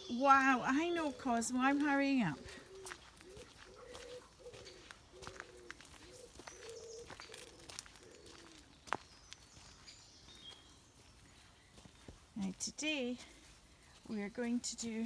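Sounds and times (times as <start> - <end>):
pigeon cooing: 0.0 - 8.7
small birds chirping: 0.0 - 15.0.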